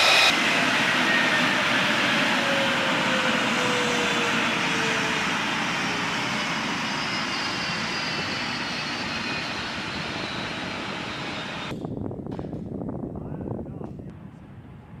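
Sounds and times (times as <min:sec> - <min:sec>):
whine tones gliding down: 0:00.0 - 0:11.7
fighter jet engine roar: 0:00.0 - 0:11.8.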